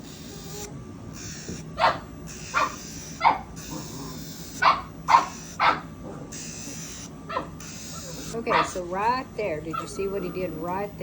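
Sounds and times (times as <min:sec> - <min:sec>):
puppy barking: 0:01.8 - 0:09.0, 0:09.7 - 0:10.2.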